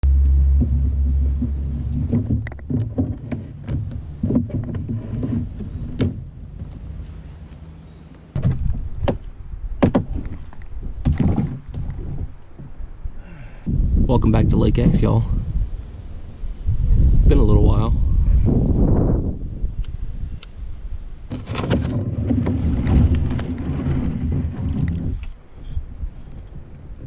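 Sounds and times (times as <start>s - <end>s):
low rumble: 0.0s - 11.0s
steady low hum: 0.0s - 21.4s
paddle knocking against kayak: 0.5s - 7.0s.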